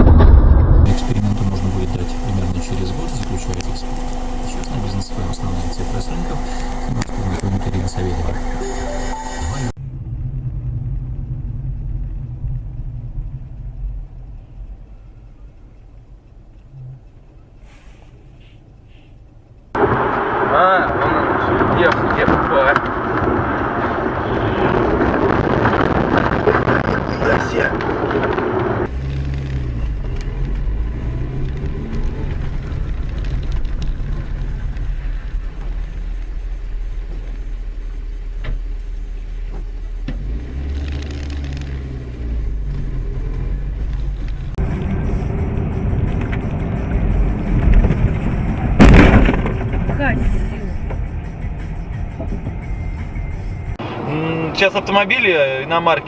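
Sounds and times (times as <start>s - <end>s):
car engine and road noise: 0.0s - 56.0s
faint ticks: 13.5s - 19.8s.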